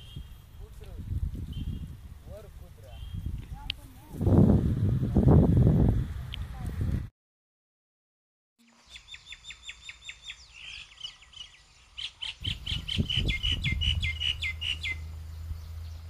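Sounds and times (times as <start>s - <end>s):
small bird chirping: 1.4s - 2.0s, 2.9s - 3.4s, 8.6s - 16.0s.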